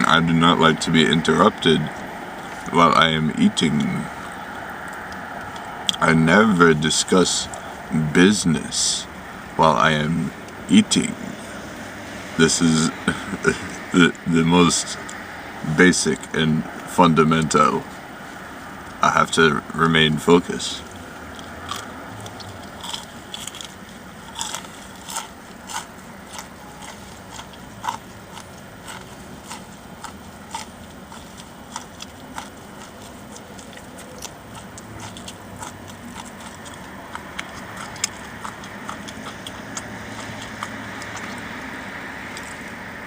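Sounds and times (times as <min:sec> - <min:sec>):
low steady hum: 0:00.0 - 0:43.0
person chewing food: 0:20.8 - 0:43.0
wet mouth clicks and smacks: 0:30.6 - 0:41.6.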